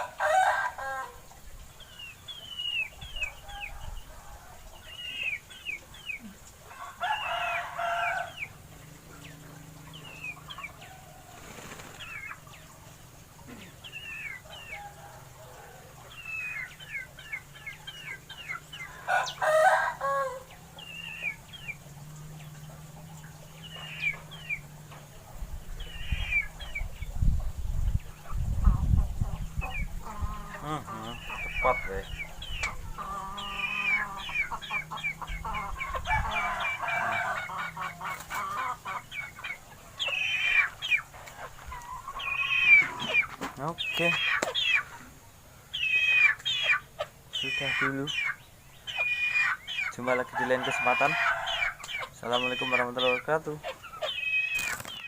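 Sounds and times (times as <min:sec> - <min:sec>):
rooster crowing: 0:00.0 - 0:01.2, 0:06.7 - 0:08.5, 0:18.9 - 0:20.5, 0:35.5 - 0:37.8, 0:50.2 - 0:51.8
small birds chirping: 0:01.1 - 0:55.0.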